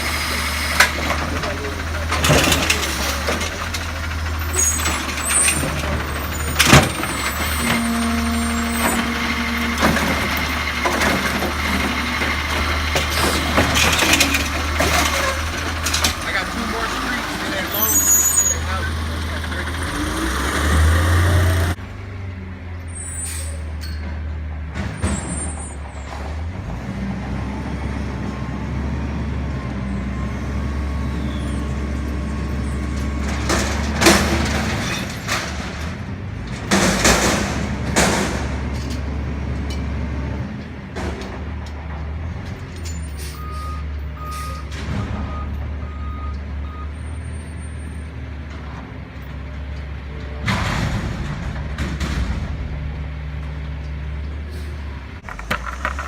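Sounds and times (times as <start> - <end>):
garbage truck engine running: 0.0 - 56.0
reversing beeper: 43.3 - 47.2.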